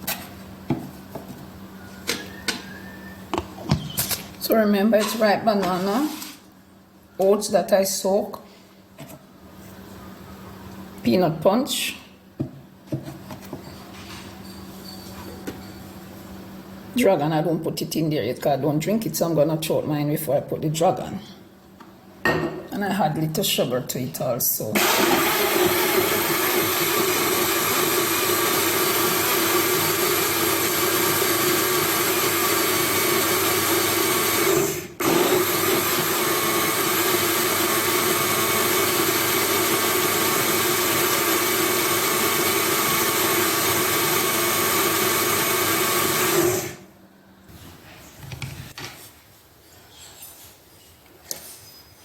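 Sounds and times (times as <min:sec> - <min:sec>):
blender motor running: 0:24.8 - 0:46.9.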